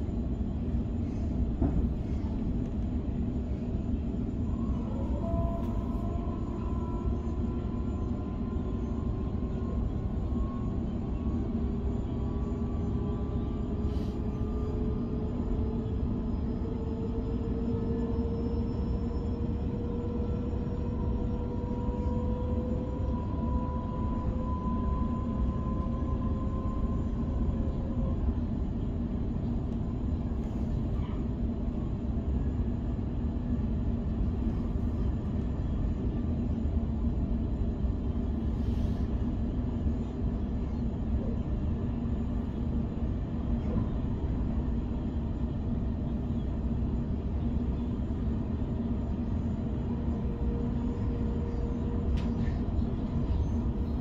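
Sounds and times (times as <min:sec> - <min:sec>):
train wheels rumbling on track: 0:00.0 - 0:54.0
train motor whine: 0:04.7 - 0:28.4.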